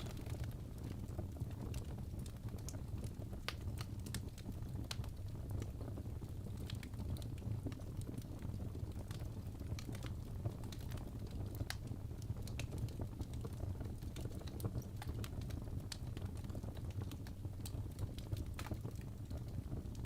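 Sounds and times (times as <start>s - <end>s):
logs crackling and popping: 0.0s - 20.0s
low rumble of flames: 0.0s - 20.0s.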